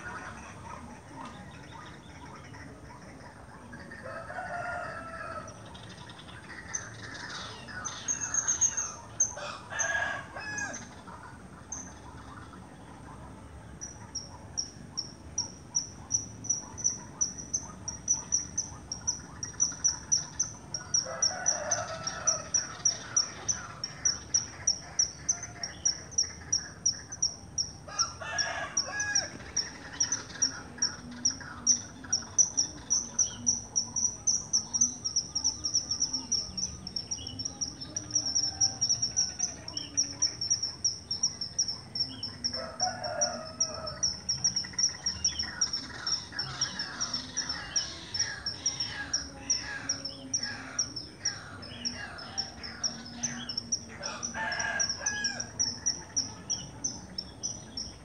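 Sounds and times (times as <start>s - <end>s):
rooster crowing: 4.0s - 5.6s, 9.4s - 11.0s, 20.8s - 23.8s, 27.9s - 29.6s, 42.4s - 44.3s, 51.6s - 57.0s.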